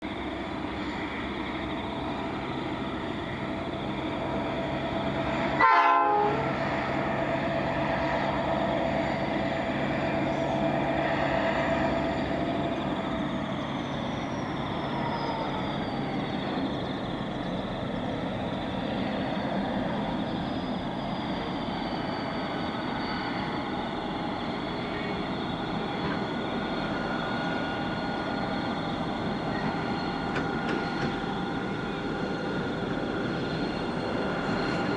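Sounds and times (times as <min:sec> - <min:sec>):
diesel locomotives droning: 0:00.0 - 0:34.9.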